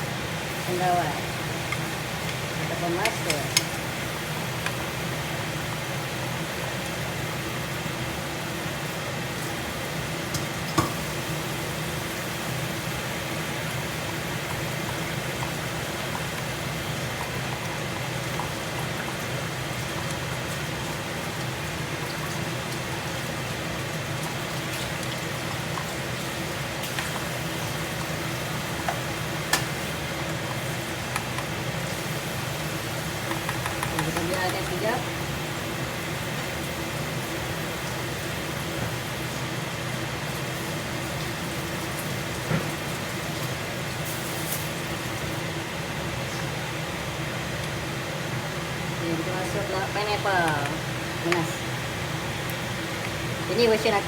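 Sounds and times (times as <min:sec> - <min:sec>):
kitchen exhaust fan hum: 0:00.0 - 0:54.0
sauce bubbling and sizzling in pan: 0:00.0 - 0:54.0.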